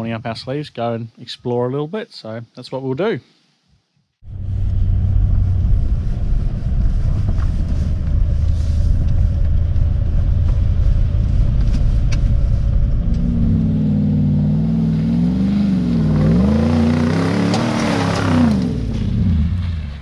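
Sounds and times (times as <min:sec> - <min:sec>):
vehicle engine rumbling and revving: 0:04.2 - 0:20.0.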